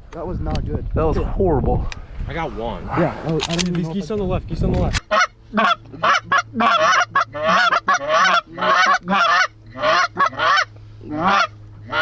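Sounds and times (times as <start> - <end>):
goose honking: 5.0 - 12.0
low steady hum: 5.0 - 12.0.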